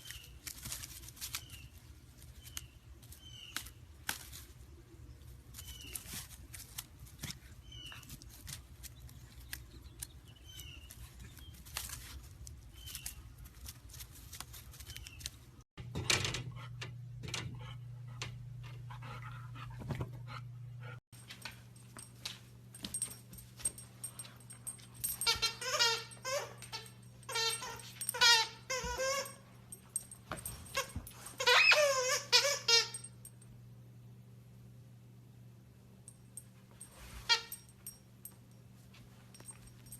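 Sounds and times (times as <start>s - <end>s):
steady low hum: 0.0s - 31.4s
faint high squeaks: 25.0s - 29.7s, 30.4s - 33.2s.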